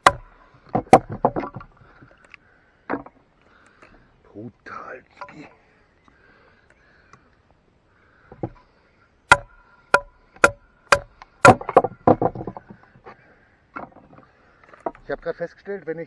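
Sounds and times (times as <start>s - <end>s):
wood knocking and cracking: 0.0s - 2.2s, 2.9s - 3.2s, 8.3s - 8.6s, 9.3s - 15.3s.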